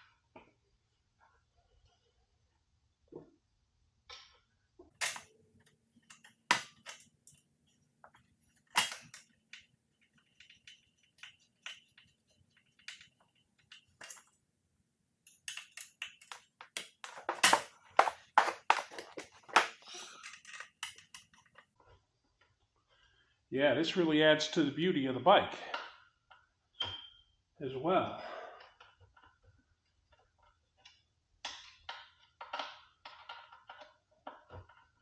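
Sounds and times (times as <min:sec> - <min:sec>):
clicks and knocks of metal parts: 0:04.9 - 0:07.4, 0:08.0 - 0:14.4, 0:15.2 - 0:21.7.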